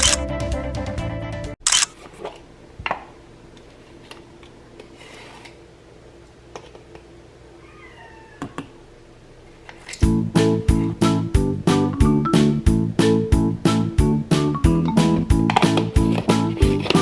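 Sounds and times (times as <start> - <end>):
falling animal-like cry: 7.6 - 8.8.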